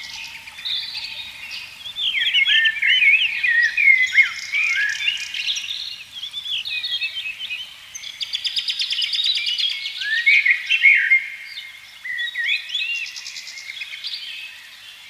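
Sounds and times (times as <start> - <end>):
birds chirping and singing: 0.0 - 11.1.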